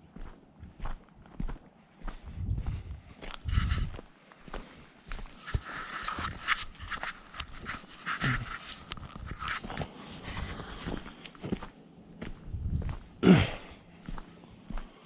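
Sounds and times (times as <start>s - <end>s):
footsteps on woodland trail: 0.1s - 13.2s, 14.0s - 15.0s.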